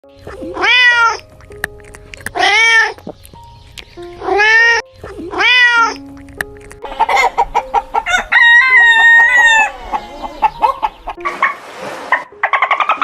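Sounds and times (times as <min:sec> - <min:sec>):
cat meowing: 0:00.3 - 0:01.3, 0:02.3 - 0:03.0, 0:04.2 - 0:06.2, 0:08.0 - 0:10.7.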